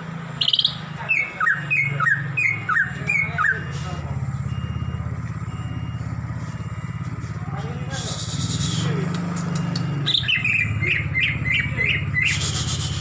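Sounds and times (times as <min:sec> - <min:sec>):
low engine hum: 0:00.0 - 0:13.0
bird chirping and whistling: 0:00.4 - 0:03.8, 0:08.0 - 0:13.0.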